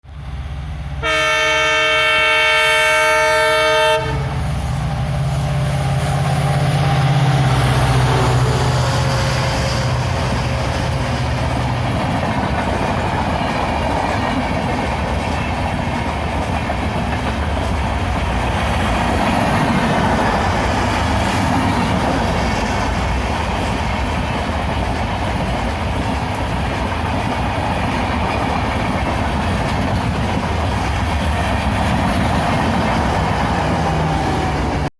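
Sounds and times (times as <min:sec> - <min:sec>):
train coaches rolling: 0:00.1 - 0:34.9
locomotive horn: 0:01.0 - 0:04.5.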